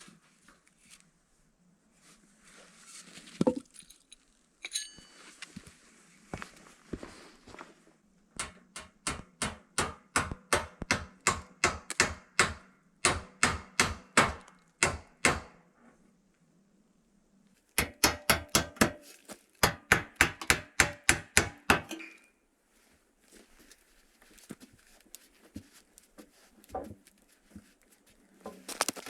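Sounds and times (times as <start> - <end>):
hammer striking rapidly: 17.8 - 18.9.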